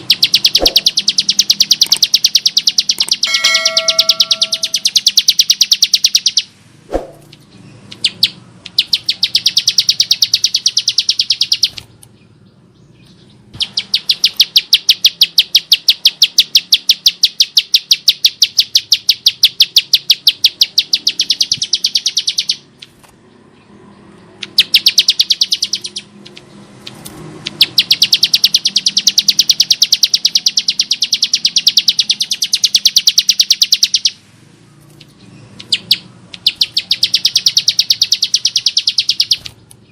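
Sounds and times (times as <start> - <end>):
bird rattling calls: 0.0 - 6.4.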